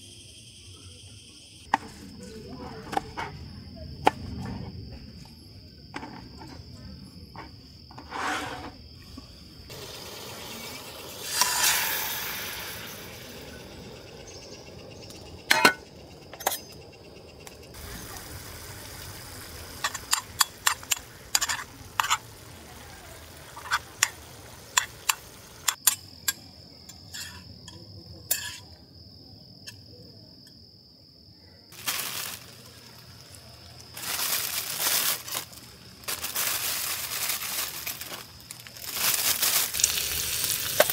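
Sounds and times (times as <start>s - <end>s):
crickets chirping: 0.0s - 40.9s
cookware clinking: 15.4s - 16.8s, 19.8s - 22.3s, 23.6s - 28.6s.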